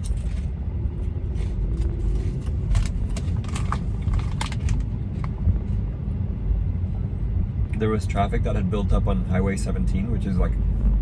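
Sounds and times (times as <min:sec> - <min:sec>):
car tyres and engine rumble: 0:00.0 - 0:11.0
light clicks and rattles: 0:01.8 - 0:05.4.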